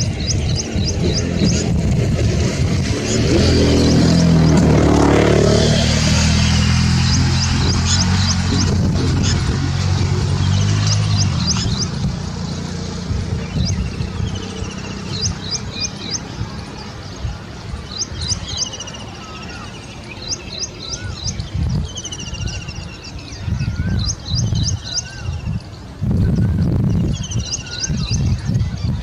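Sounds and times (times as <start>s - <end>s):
steady low rumble: 0.0s - 18.5s.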